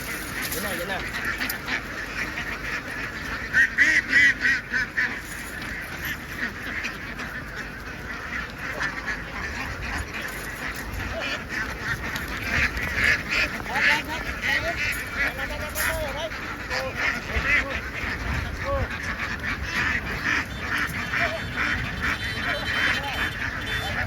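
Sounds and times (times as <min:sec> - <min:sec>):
flock of ducks quacking: 0:00.0 - 0:24.0.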